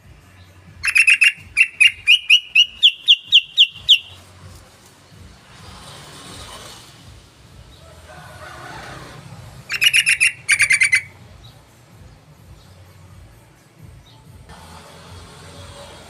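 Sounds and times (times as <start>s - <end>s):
bird chattering calls: 0.8s - 4.3s, 9.7s - 11.2s.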